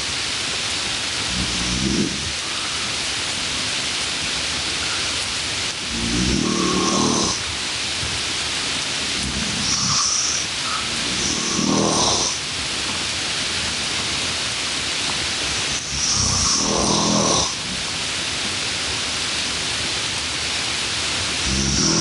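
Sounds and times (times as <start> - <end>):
steady background hiss: 0.0 - 22.0
person snoring: 1.3 - 2.6, 5.9 - 7.4, 9.2 - 12.4, 15.7 - 17.8, 21.4 - 22.0.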